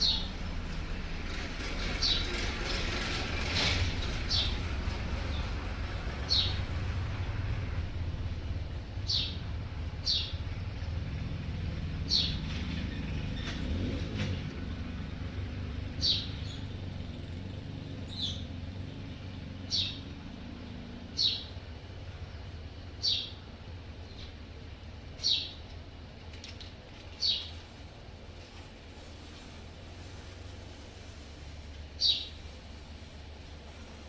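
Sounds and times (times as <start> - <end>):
bird chirping: 0.0 - 0.3, 6.2 - 6.6, 9.0 - 10.4, 19.6 - 20.1, 21.2 - 21.5, 23.0 - 23.4, 25.2 - 25.6, 27.2 - 27.5, 32.0 - 32.3
low background rumble: 0.0 - 13.6.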